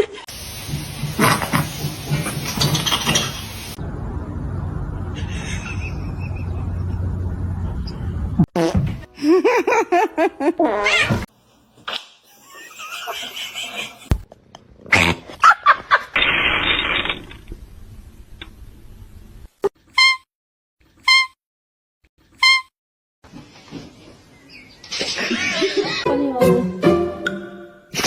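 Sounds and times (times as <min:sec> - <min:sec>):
low steady rumble: 0:03.8 - 0:08.4.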